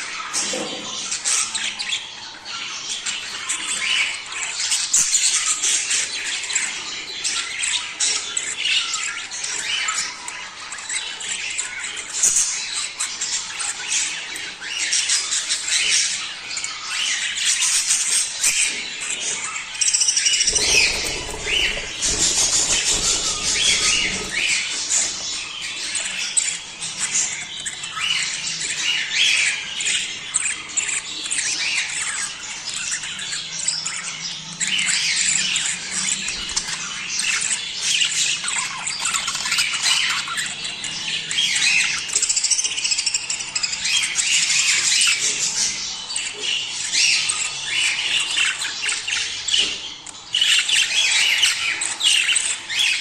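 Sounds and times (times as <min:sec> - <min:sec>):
budgerigars chattering and warbling: 0:00.0 - 0:53.0.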